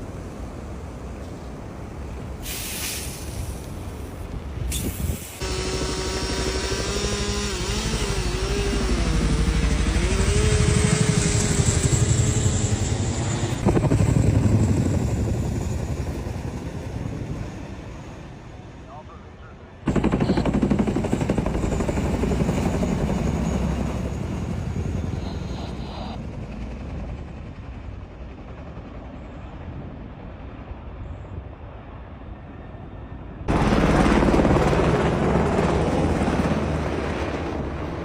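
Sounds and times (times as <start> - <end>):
helicopter rotor chopping: 5.4 - 18.4, 19.8 - 30.4, 33.5 - 38.0.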